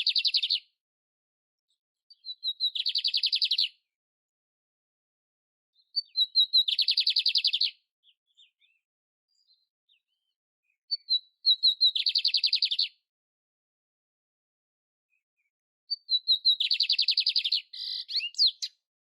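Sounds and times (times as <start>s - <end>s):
canary singing with trills: 0.0s - 0.7s, 2.1s - 3.8s, 5.8s - 13.0s, 15.9s - 18.8s
faint bird chips: 15.9s - 18.8s.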